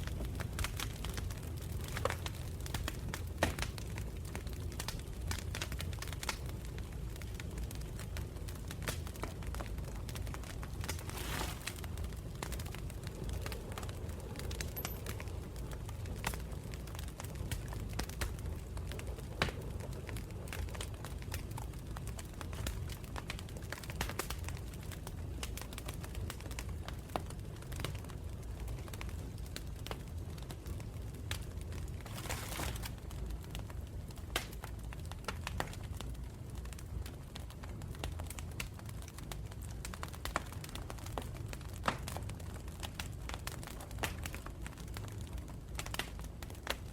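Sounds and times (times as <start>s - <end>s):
campfire crackling and popping: 0.0s - 46.9s
fire hissing: 10.0s - 16.7s.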